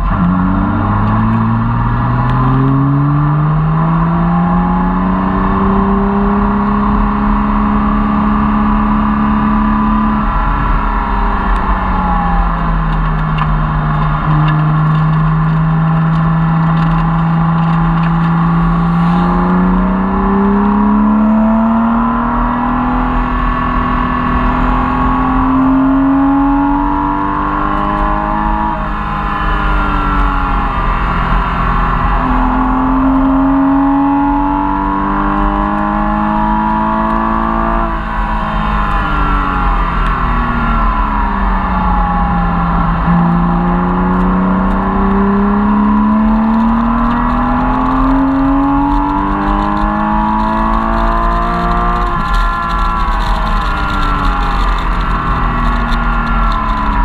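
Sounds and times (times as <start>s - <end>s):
car engine revving: 0.0s - 57.0s
road and wind noise: 0.0s - 57.0s.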